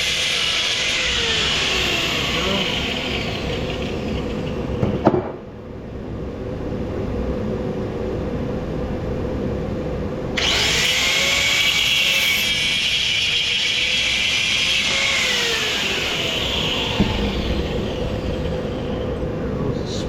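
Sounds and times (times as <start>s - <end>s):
power tool motor whine: 0.0s - 5.4s, 10.4s - 19.4s.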